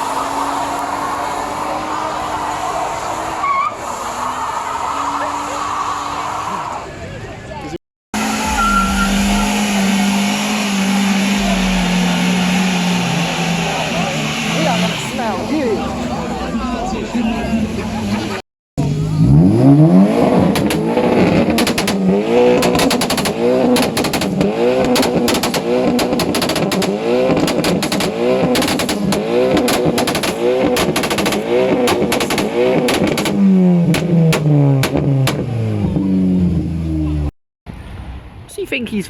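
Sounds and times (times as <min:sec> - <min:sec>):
car engine revving hard: 0:08.2 - 0:37.3
exhaust pops and crackles: 0:08.5 - 0:14.7, 0:18.1 - 0:36.2.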